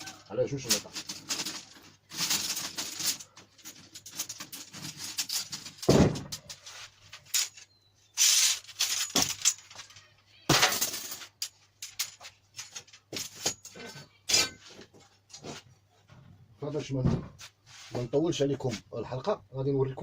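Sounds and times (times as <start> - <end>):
steel tubes knocking and clattering: 0.0 - 15.1.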